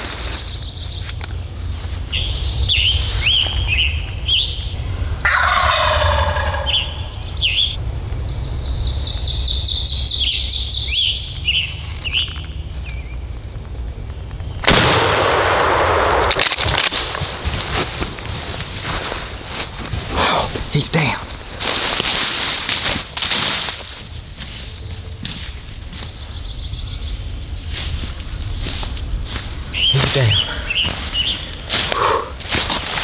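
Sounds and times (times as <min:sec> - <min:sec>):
steady low rumble: 0:00.0 - 0:33.0
turkey gobbling: 0:02.1 - 0:07.8.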